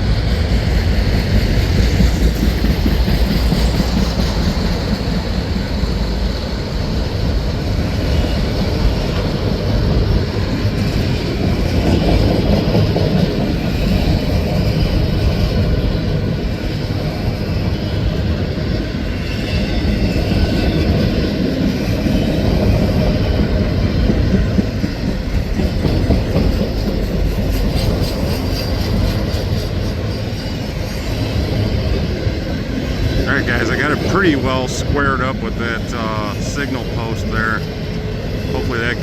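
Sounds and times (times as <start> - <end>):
steel train wheels on rail: 0.0 - 39.0.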